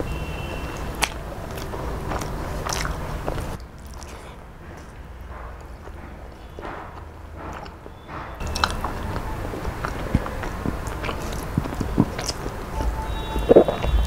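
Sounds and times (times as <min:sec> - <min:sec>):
close chewing with mouth clicks: 0:00.1 - 0:14.0.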